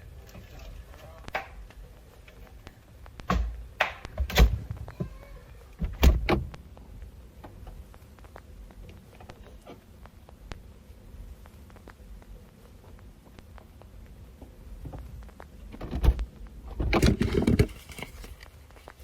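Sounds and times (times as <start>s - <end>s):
refrigerator door opening and shutting: 3.3s - 4.8s, 5.8s - 6.6s, 15.7s - 18.2s.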